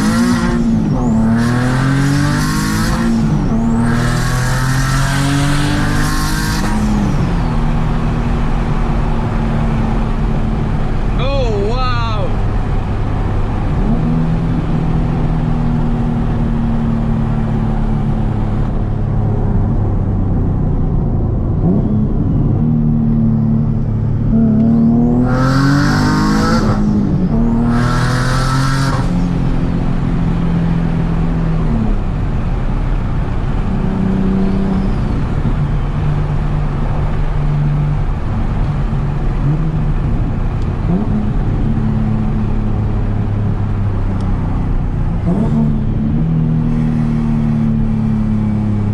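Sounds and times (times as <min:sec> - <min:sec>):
car engine running: 0:05.2 - 0:25.3.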